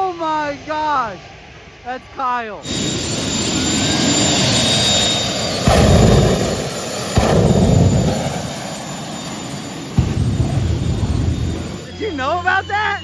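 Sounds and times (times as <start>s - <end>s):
jet engine roaring: 2.6s - 13.0s.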